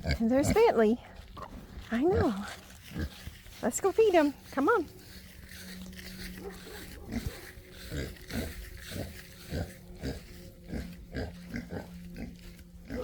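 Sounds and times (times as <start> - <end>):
pigs grunting: 0.0 - 3.3, 6.4 - 13.0.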